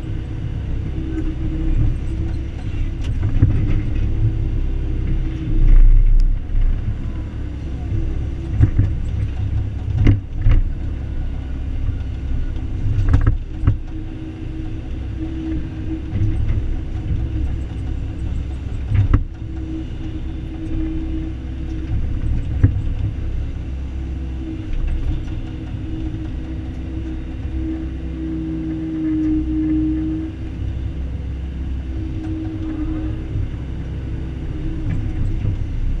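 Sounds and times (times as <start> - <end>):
diesel engine rumble: 0.0 - 36.0
hydraulic whine: 0.0 - 36.0.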